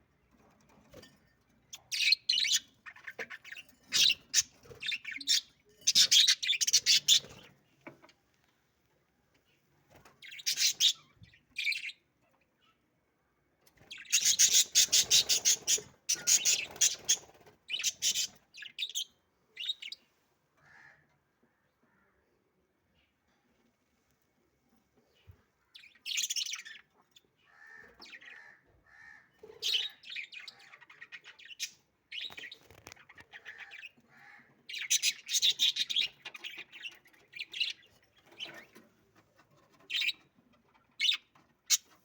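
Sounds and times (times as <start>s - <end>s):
budgerigars chirping and chattering: 1.7s - 8.0s, 10.2s - 12.0s, 13.8s - 20.0s, 29.5s - 34.0s, 34.6s - 38.9s, 39.6s - 42.0s.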